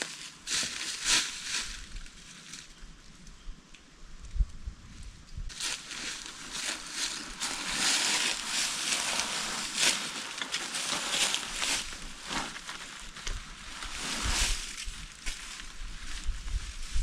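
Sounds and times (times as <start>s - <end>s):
fabric rustling and crinkling: 5.5s - 17.0s.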